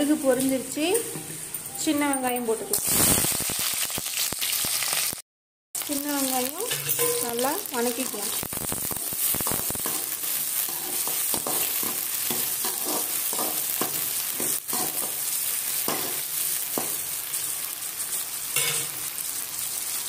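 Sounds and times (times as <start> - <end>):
shallots sizzling in hot oil: 0.0 - 1.9, 2.7 - 5.2, 5.8 - 20.0
metal spatula scraping a pan: 6.6 - 17.1, 18.6 - 19.0.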